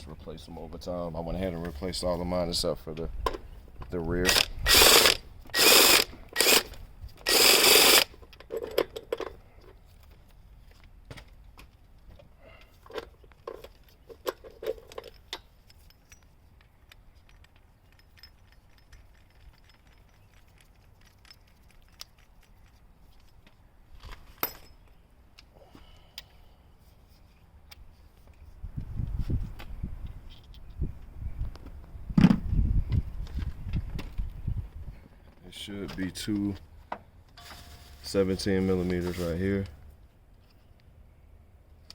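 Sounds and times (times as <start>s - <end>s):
socket ratchet clicking: 4.3s - 8.1s.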